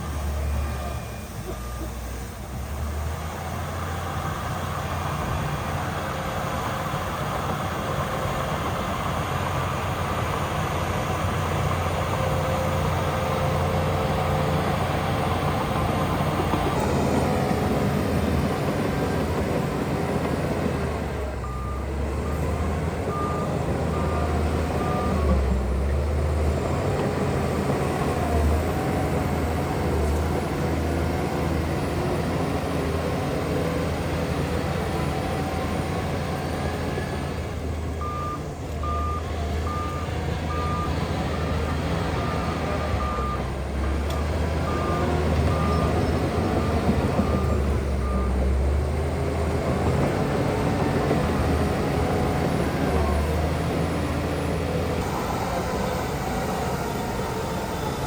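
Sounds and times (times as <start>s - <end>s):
reversing alarm beeps: 0.0s - 2.2s, 21.4s - 22.5s, 23.1s - 25.4s, 38.0s - 41.6s, 42.2s - 43.5s, 44.2s - 48.4s, 55.0s - 58.0s
heavy diesel machinery running: 0.0s - 58.0s.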